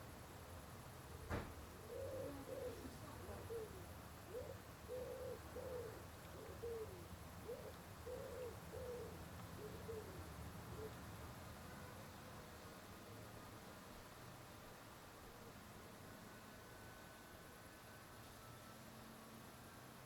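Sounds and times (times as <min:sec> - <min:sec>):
pigeon cooing: 0:01.2 - 0:11.0.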